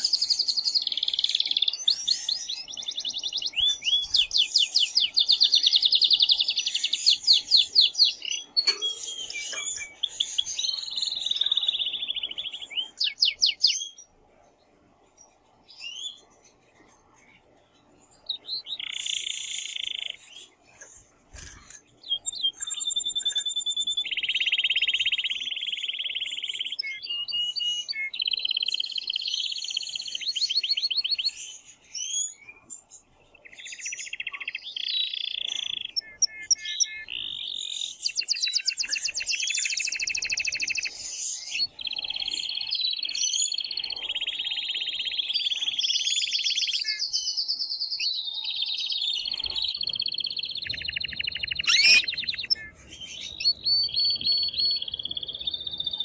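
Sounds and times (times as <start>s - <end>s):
canary trilling song: 0.0s - 14.2s, 15.2s - 16.6s, 17.7s - 56.0s.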